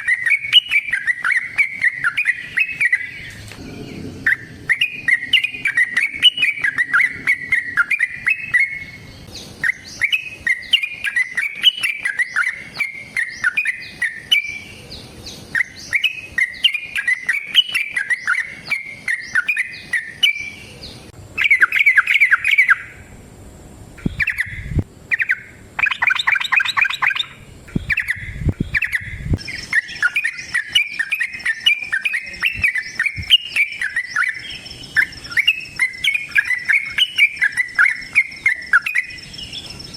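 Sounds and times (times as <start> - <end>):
bulbul chattering song: 0.0 - 23.1, 24.0 - 39.9
dull low thumps: 27.7 - 29.4.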